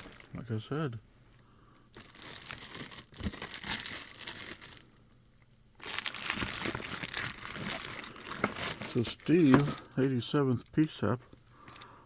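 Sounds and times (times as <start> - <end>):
packaging crinkling: 0.0 - 0.9, 1.9 - 5.2, 5.8 - 11.0.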